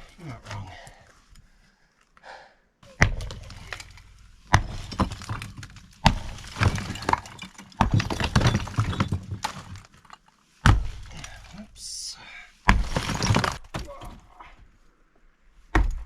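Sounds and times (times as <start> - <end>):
sledgehammer striking block wall: 2.9 - 9.8, 10.6 - 11.2, 12.6 - 14.2, 15.7 - 16.0
rubble cracking and clattering: 2.9 - 11.7, 12.6 - 14.4.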